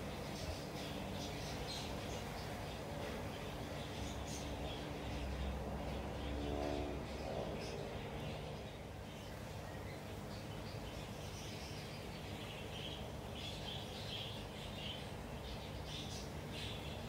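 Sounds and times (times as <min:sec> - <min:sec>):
low background hum: 0:00.0 - 0:17.0
small birds chirping: 0:00.0 - 0:17.0.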